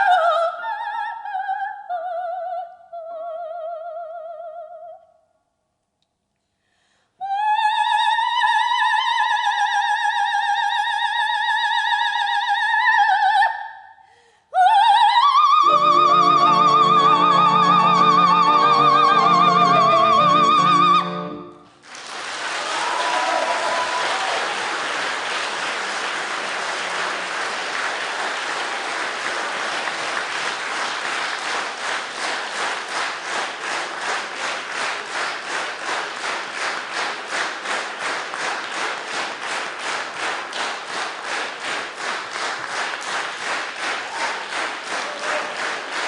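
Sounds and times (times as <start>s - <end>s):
audience applauding: 15.6s - 46.0s.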